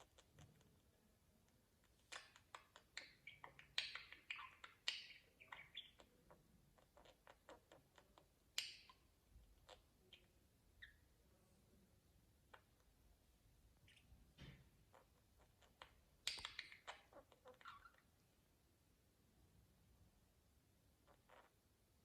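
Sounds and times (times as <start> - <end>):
budgerigars chirping and clicking: 0.0 - 0.9, 1.8 - 11.1, 12.4 - 13.0, 13.8 - 18.1, 21.0 - 21.6.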